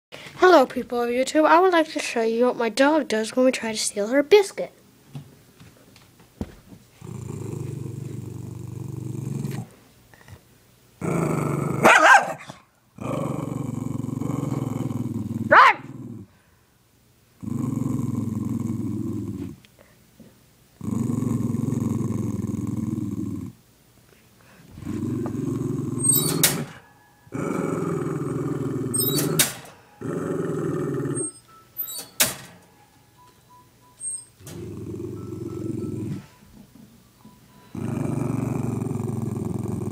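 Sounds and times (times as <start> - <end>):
dog growling: 7.0 - 10.4, 11.0 - 16.4, 17.4 - 19.6, 20.8 - 23.6, 24.7 - 32.0, 34.4 - 36.3, 37.7 - 39.9.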